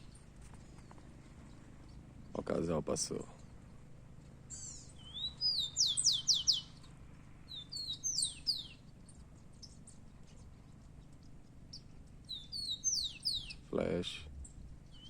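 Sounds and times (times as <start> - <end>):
sparrow whistled song: 4.5 - 13.7, 14.4 - 15.0.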